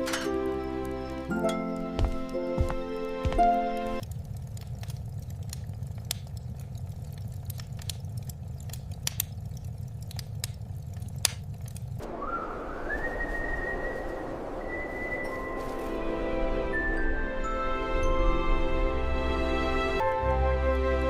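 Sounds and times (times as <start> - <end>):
storm wind rumble: 0.0 - 20.1
crackling clicks: 3.4 - 12.1
whistling tone: 12.0 - 18.2
hissing gust of wind: 12.0 - 19.8.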